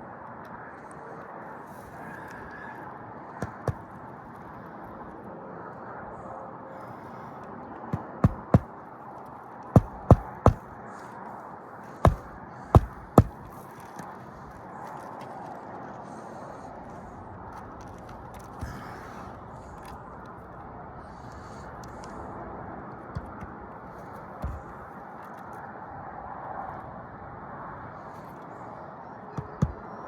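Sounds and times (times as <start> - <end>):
hammer striking roof shingles: 3.4 - 3.9, 7.9 - 8.7, 9.7 - 10.7, 12.0 - 13.6, 24.4 - 24.8, 29.4 - 29.9.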